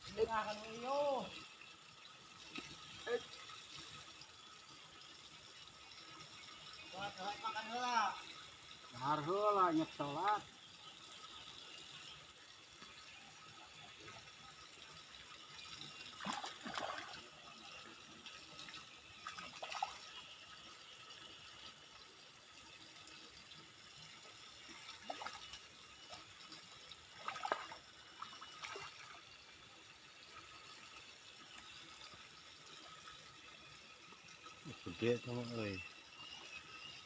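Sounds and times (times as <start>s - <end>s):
water splashing and pouring: 13.7s - 22.6s, 23.2s - 29.8s.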